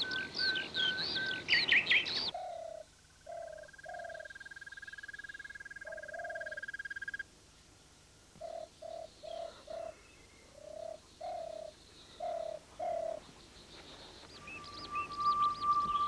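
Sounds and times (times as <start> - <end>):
dove cooing: 0.0 - 4.4, 5.8 - 6.8, 8.4 - 13.3.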